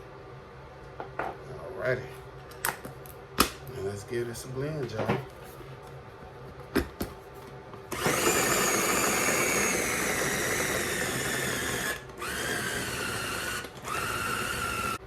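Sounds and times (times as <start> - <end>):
food processor motor whining: 7.9 - 15.0.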